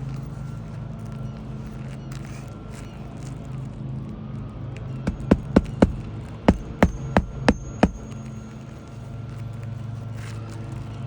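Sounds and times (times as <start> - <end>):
hammer striking nails: 5.1 - 8.2.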